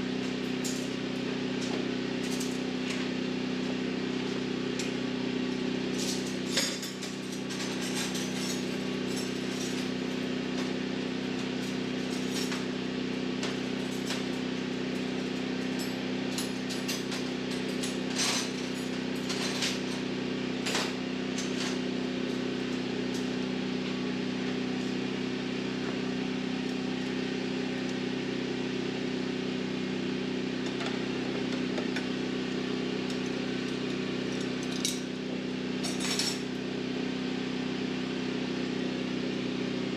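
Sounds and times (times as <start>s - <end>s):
wrench clinking on metal: 33.1s - 35.1s.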